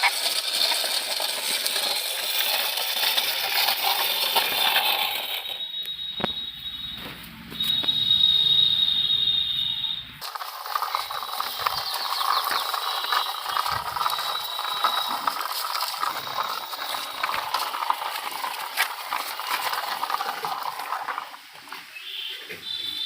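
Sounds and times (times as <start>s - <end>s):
plastic toy wheels clattering: 0.0s - 6.3s, 7.6s - 22.0s.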